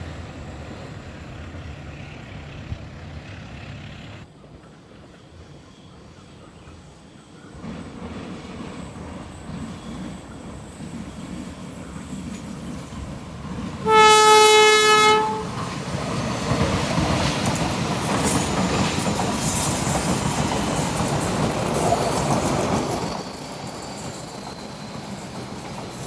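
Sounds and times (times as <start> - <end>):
diesel train rumbling past: 0.0 - 26.0
train horn blast: 13.8 - 15.7
wheels clattering on rails: 15.2 - 26.0.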